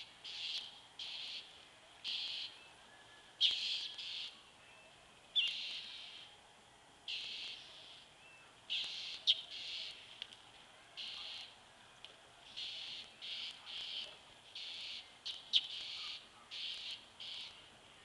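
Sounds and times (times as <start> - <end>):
bird harsh hissy calls: 7.1 - 8.0, 8.7 - 10.0, 11.0 - 11.5, 12.6 - 17.6.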